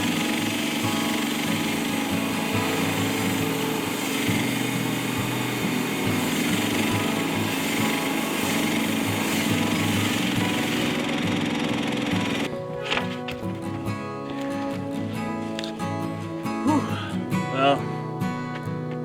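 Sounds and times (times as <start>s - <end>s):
sawmill engine running under load: 0.0s - 12.5s.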